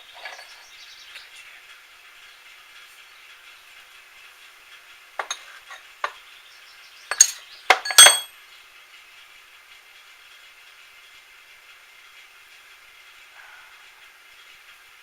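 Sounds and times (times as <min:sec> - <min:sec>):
metal tools clinking: 0:00.0 - 0:00.6, 0:05.2 - 0:06.2, 0:07.1 - 0:08.3.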